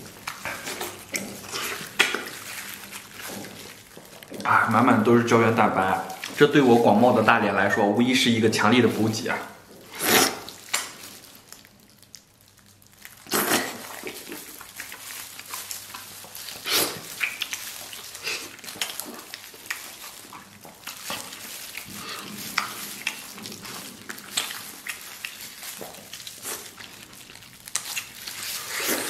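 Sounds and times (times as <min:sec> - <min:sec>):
wet chewing and smacking: 0:00.0 - 0:29.0
loud slurps: 0:09.9 - 0:10.6, 0:13.2 - 0:14.3, 0:16.6 - 0:17.5, 0:28.4 - 0:29.0.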